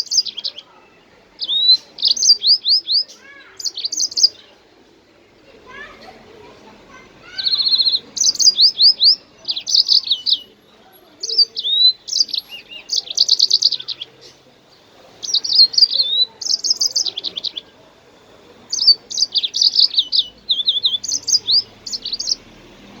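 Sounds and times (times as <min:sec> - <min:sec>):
songbird singing trills: 0:00.0 - 0:23.0.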